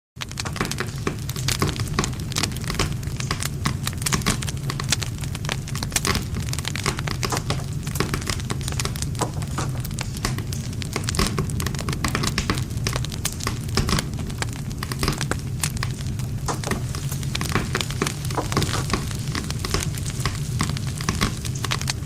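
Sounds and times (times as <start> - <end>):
campfire crackling and popping: 0.2 - 22.0
low rumble of flames: 0.2 - 22.0.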